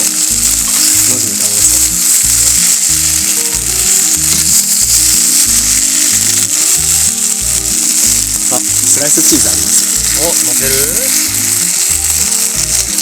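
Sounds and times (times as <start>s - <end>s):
background music with low beat: 0.0s - 13.0s
food sizzling in a skillet: 0.0s - 13.0s.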